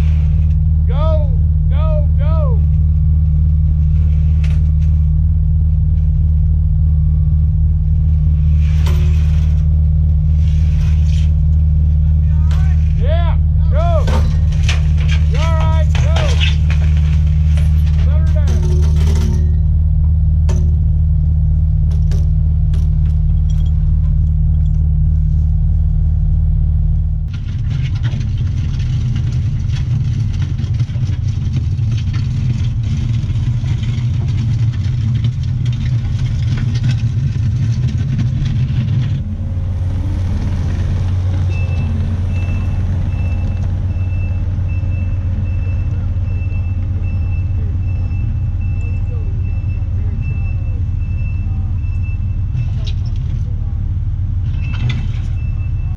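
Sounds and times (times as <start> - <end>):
excavator diesel engine running: 0.0 - 55.9
reversing alarm beeping: 40.3 - 52.8.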